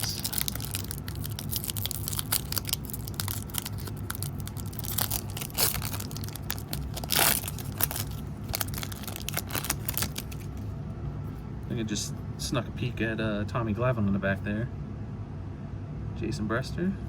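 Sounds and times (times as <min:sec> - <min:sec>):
foil wrapper tearing and crinkling: 0:00.0 - 0:10.6.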